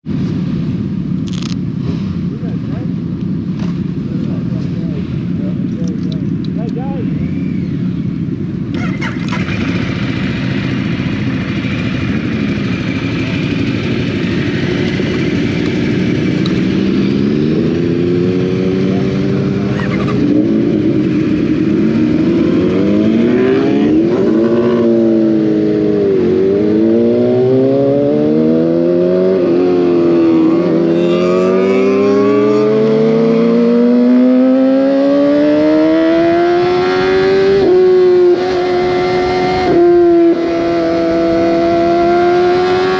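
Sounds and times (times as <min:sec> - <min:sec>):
motorcycle engine accelerating: 0:01.3 - 0:42.9.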